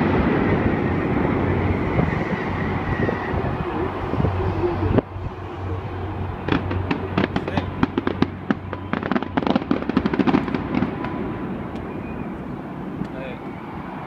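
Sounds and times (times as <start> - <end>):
fireworks cracks and bangs: 6.4 - 13.3.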